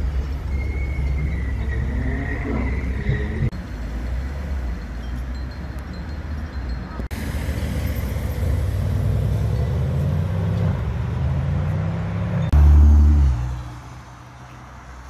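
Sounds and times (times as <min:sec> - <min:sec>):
car engine accelerating: 0:07.2 - 0:13.8.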